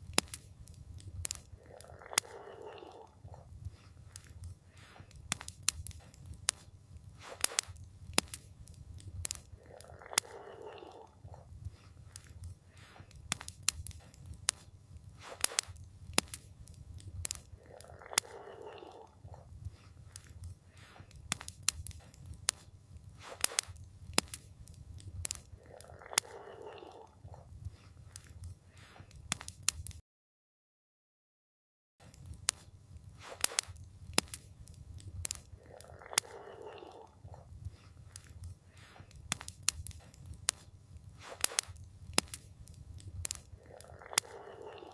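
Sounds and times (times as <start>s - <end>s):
campfire crackling and popping: 0.0s - 30.0s, 32.0s - 44.9s
low rumble of burning wood: 0.0s - 30.0s, 32.0s - 44.9s.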